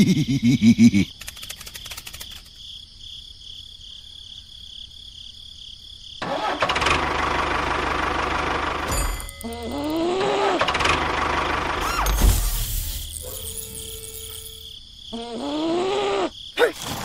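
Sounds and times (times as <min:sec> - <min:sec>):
rapid clicking: 0:01.1 - 0:02.6
tractor engine starting and running: 0:06.2 - 0:14.5.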